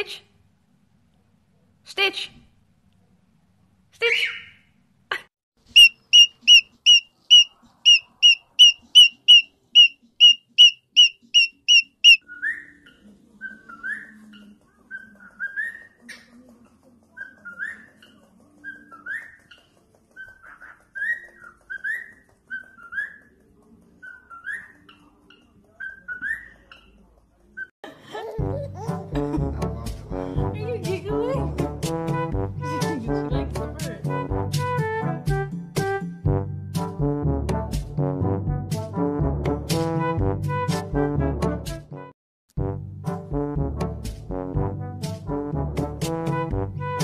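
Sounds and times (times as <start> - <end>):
cockatiel chirping: 5.7 - 12.6
music: 28.4 - 47.0.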